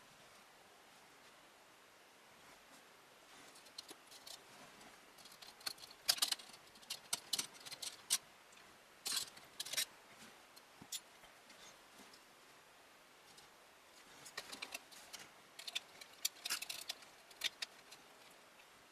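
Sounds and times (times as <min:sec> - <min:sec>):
plastic and metal parts clicking: 0:05.2 - 0:08.2, 0:09.0 - 0:09.9, 0:15.6 - 0:18.0.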